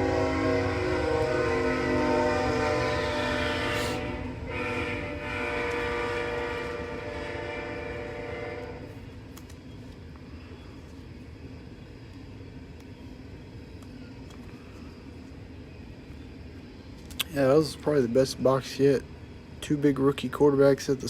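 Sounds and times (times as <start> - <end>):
train horn chord: 0.0 - 9.0.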